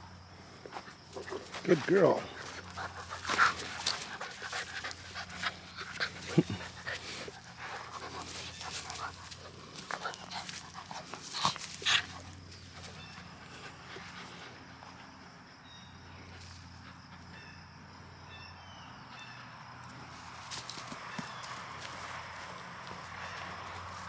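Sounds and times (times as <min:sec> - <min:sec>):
dog panting: 0:00.6 - 0:15.6.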